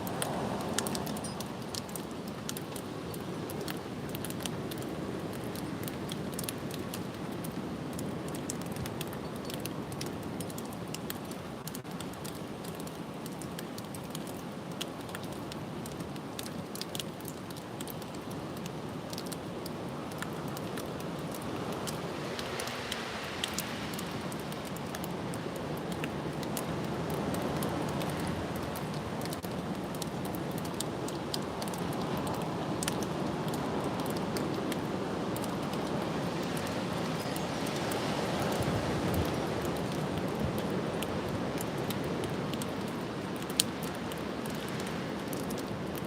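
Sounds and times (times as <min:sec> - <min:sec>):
small sharp ticks: 0:00.1 - 0:26.6, 0:43.4 - 0:45.7.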